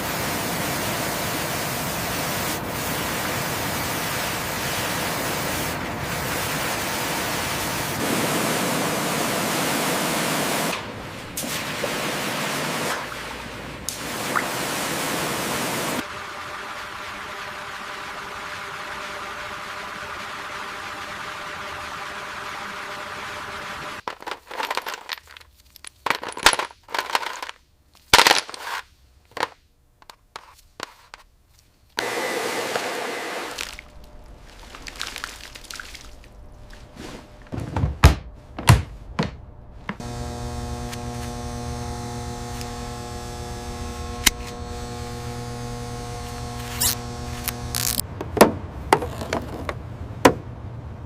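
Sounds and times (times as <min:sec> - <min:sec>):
sharp knocks and clanks: 0:37.5 - 0:40.0
droning chord: 0:40.0 - 0:48.0.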